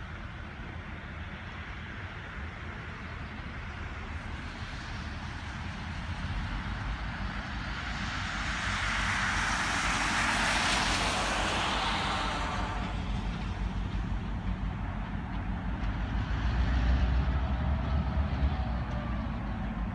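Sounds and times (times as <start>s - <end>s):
steady low rumble: 0.0s - 19.9s
vehicle passing by: 7.5s - 13.8s, 15.9s - 19.9s.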